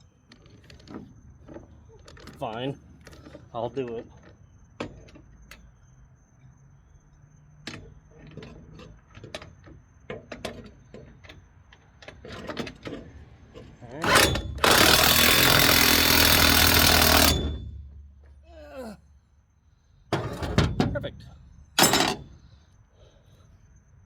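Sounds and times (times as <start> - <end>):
impact wrench burst: 14.0 - 18.2
metal tools clinking: 21.8 - 22.5.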